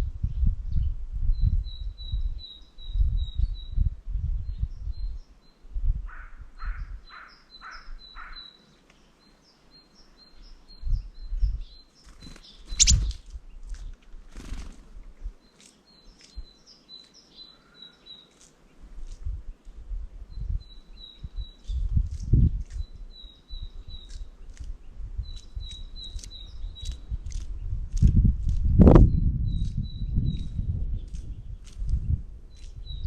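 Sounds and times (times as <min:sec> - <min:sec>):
small songbirds chirping: 0:00.0 - 0:33.0
lower bird calls: 0:04.4 - 0:14.6, 0:15.4 - 0:18.4.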